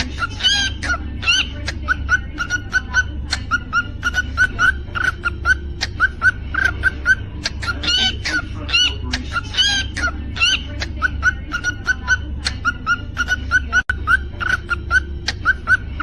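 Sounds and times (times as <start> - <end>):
cockatiel chirping: 0.0 - 16.0
low steady hum: 0.0 - 16.0.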